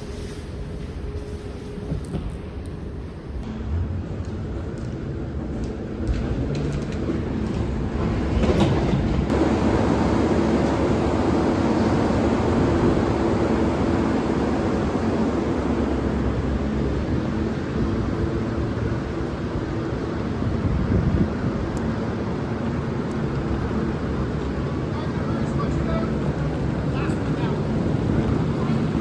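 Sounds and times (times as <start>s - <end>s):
train rumbling: 0.0s - 29.0s
train clicks: 4.1s - 9.8s, 16.1s - 29.0s.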